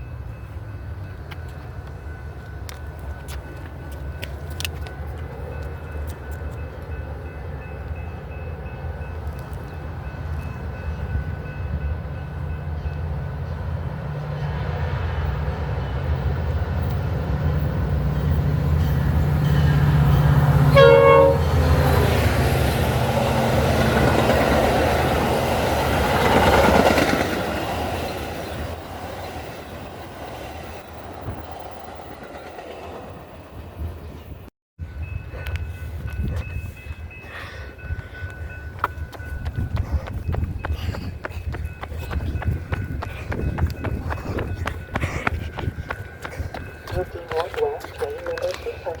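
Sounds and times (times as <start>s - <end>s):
train engine drone: 0.0s - 49.0s
train cars rolling: 14.5s - 34.4s, 35.0s - 49.0s
train horn blast: 19.6s - 22.3s.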